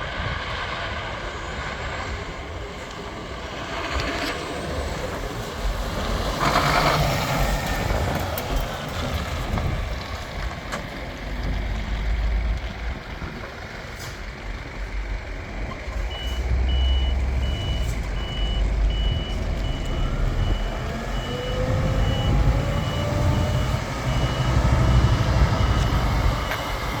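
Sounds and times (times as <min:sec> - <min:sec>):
truck diesel engine running: 0:00.8 - 0:27.0
reversing alarm beeping: 0:15.9 - 0:27.0.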